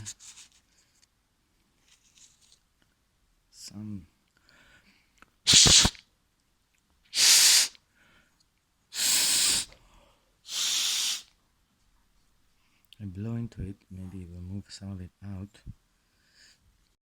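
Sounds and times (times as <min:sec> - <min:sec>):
breath blown hard: 0:05.5 - 0:06.0, 0:07.1 - 0:07.8, 0:08.9 - 0:09.8, 0:10.5 - 0:11.3.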